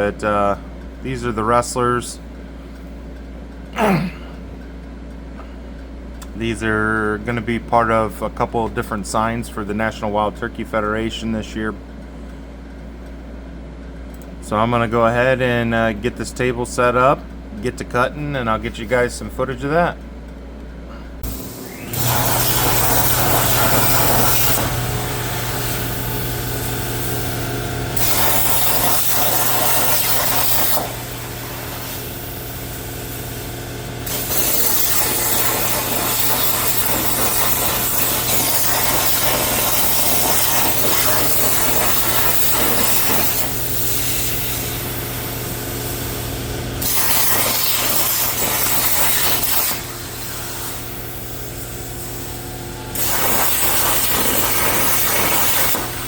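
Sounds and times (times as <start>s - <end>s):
plasma cutter hissing: 21.2s - 27.4s, 28.0s - 33.4s, 34.0s - 46.2s, 46.8s - 56.0s.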